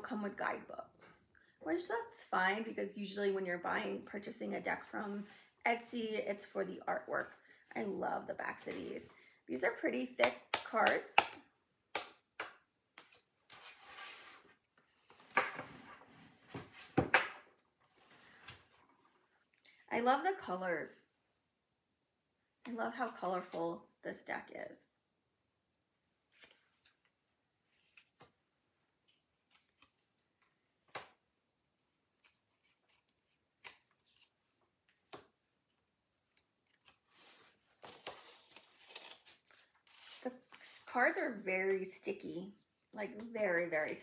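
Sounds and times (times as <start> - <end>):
cards clicking and tapping: 10.2 - 13.2
cards rustling: 29.0 - 31.2, 32.0 - 35.3, 36.3 - 40.9.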